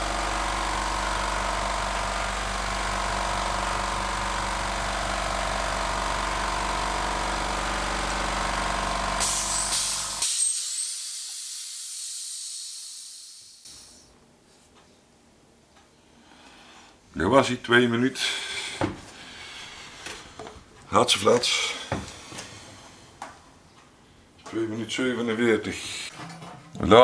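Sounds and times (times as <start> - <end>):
air compressor running: 0.0 - 14.1
pressure venting hiss: 7.0 - 14.1
sharp hisses: 9.2 - 14.0.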